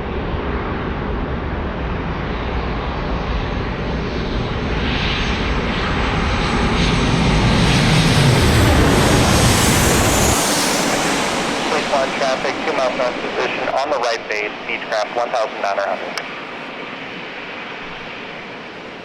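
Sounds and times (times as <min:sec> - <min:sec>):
jet airliner engines: 0:00.0 - 0:19.0
high sweeping whine: 0:08.3 - 0:19.0.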